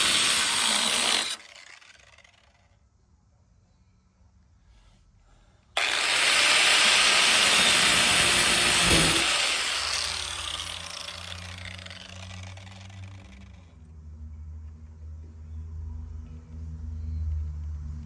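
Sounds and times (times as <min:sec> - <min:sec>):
cut-off tool cutting sheet metal: 0:00.0 - 0:02.2, 0:05.8 - 0:13.3
tool winding down whine: 0:00.0 - 0:02.7, 0:05.8 - 0:13.8.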